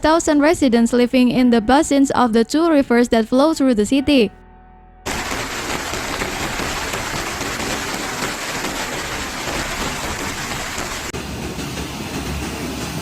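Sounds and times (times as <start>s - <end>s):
heavy rain falling: 5.1s - 11.2s.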